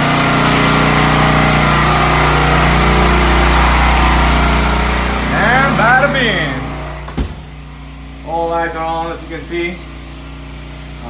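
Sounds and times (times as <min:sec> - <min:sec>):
portable generator engine running: 0:00.0 - 0:11.0.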